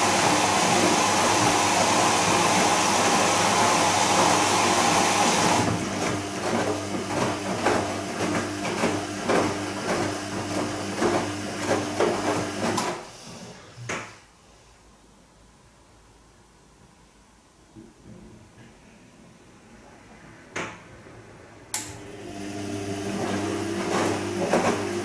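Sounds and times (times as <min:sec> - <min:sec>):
washing machine filling with water: 0:00.0 - 0:13.7, 0:22.0 - 0:25.0.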